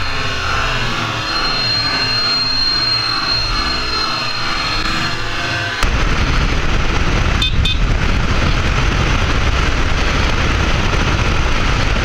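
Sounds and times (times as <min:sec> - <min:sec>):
wind and road noise on motorcycle: 0:04.6 - 0:12.0.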